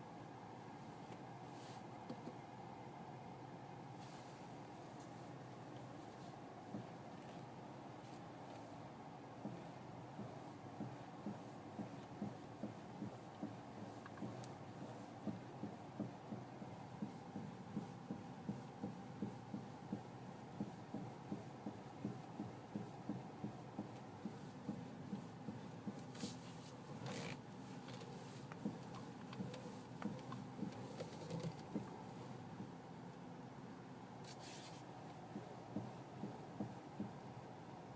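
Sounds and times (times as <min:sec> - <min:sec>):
dull knocking from car front end: 0:06.6 - 0:07.0, 0:09.4 - 0:26.3, 0:26.9 - 0:32.8, 0:35.2 - 0:37.3.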